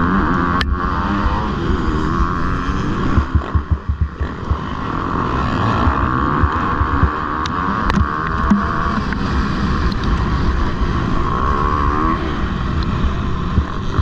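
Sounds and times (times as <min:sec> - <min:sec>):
motocross bike engine racing: 0:00.0 - 0:14.0
wind buffeting microphone: 0:00.6 - 0:11.3
low thumps: 0:03.1 - 0:04.9, 0:07.9 - 0:09.3.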